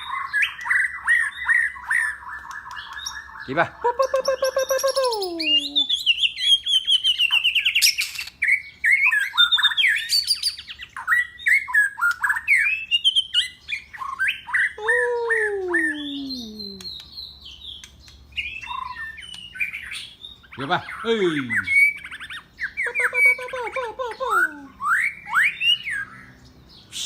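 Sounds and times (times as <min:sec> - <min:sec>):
pet bird chirping and squawking: 0:00.0 - 0:11.1, 0:18.4 - 0:26.0
bird downward-sliding call: 0:03.8 - 0:06.0, 0:14.8 - 0:17.0.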